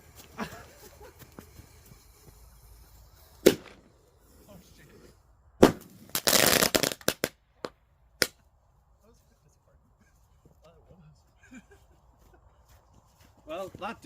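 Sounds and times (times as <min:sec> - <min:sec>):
firework crackling: 0:00.0 - 0:04.8, 0:05.6 - 0:08.3
firework pops: 0:03.4 - 0:03.8, 0:05.6 - 0:08.4
firework bangs: 0:03.4 - 0:03.9, 0:05.6 - 0:08.3.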